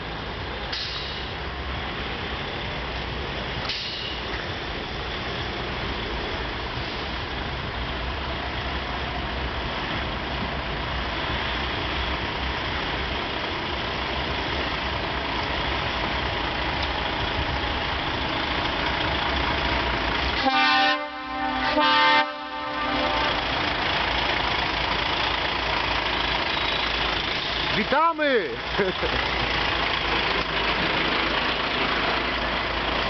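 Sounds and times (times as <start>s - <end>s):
heavy engines rumbling: 0.0s - 33.0s
truck air horn blasts: 20.4s - 23.7s.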